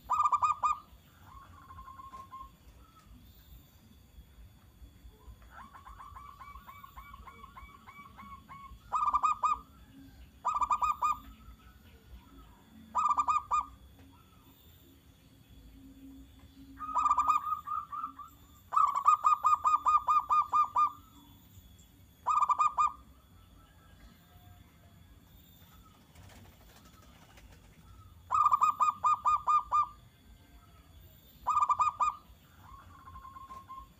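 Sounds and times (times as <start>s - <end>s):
dove cooing: 0.0s - 3.0s, 5.2s - 11.7s, 12.3s - 14.5s, 16.7s - 21.1s, 22.2s - 23.1s, 25.8s - 30.0s, 31.4s - 33.9s.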